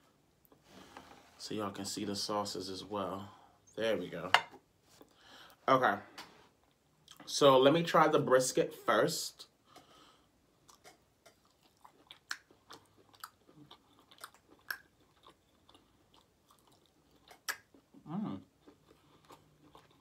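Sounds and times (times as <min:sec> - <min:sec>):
wet chewing with mouth clicks: 0:10.6 - 0:20.0
person humming: 0:18.0 - 0:18.5.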